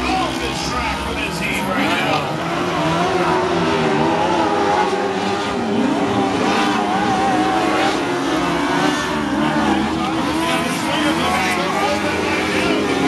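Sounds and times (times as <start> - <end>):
racing motorcycle engines revving: 0.0 - 13.0.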